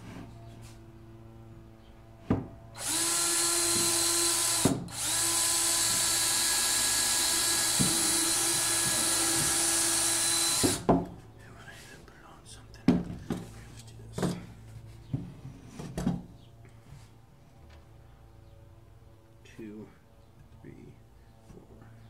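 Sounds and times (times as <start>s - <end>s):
power drill drilling wood: 2.8s - 10.9s.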